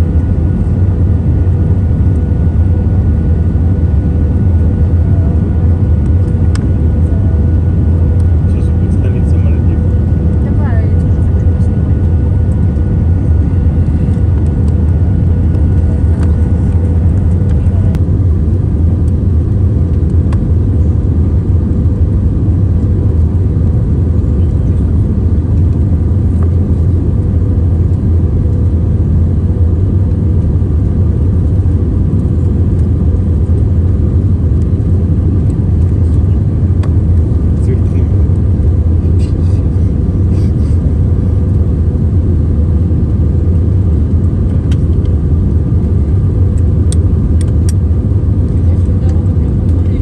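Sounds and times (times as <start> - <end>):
faint steady hum: 0.0 - 50.0
vehicle low rumble: 0.0 - 50.0.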